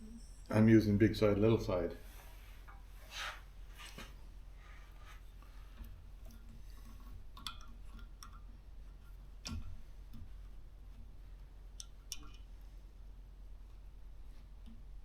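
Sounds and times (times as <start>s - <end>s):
faint steady hum: 0.0s - 15.0s
small clicks and taps of parts: 5.2s - 15.0s.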